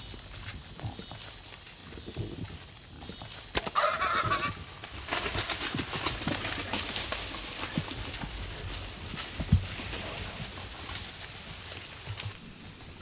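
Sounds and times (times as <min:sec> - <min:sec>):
animal crashing through brush: 0:03.5 - 0:12.4.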